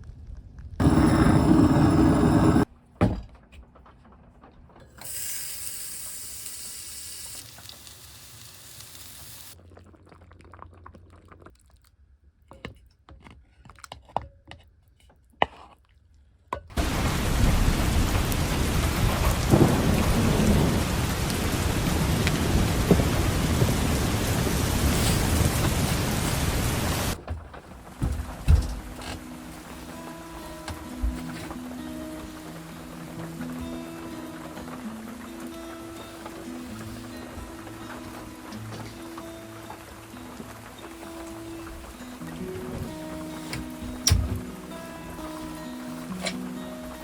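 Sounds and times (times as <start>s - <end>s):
heavy rain: 0.8s - 2.7s, 16.8s - 27.2s, 27.8s - 47.0s.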